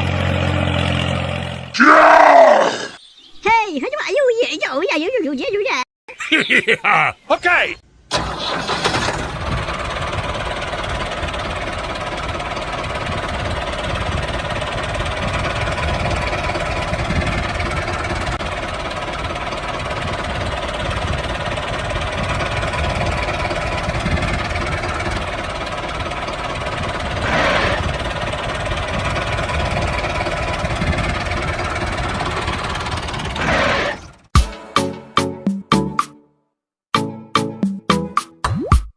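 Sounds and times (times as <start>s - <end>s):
mini tractor engine clattering: 8.1s - 33.4s.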